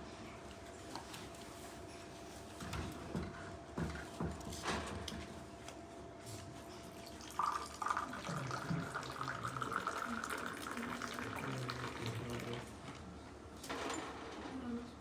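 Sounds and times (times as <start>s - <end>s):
tea pouring into a glass: 7.0s - 12.8s.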